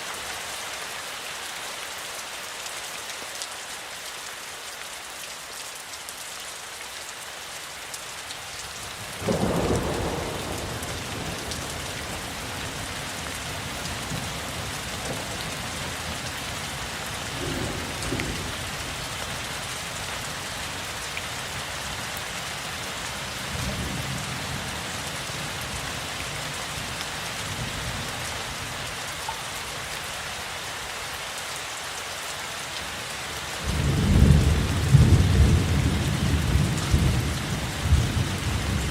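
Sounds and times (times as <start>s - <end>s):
steady rain falling: 0.0s - 38.9s
low rumbling thunder: 9.2s - 13.4s, 17.3s - 18.6s.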